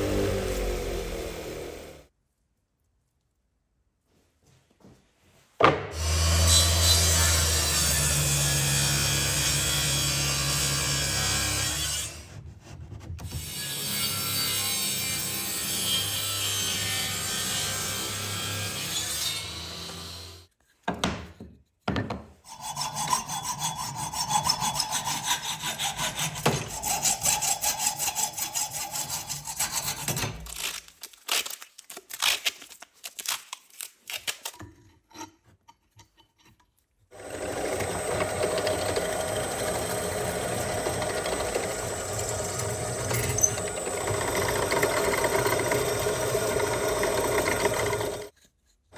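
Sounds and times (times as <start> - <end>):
hand saw strokes: 22.4 - 31.5, 37.1 - 48.9
steady machine sound: 37.5 - 48.3.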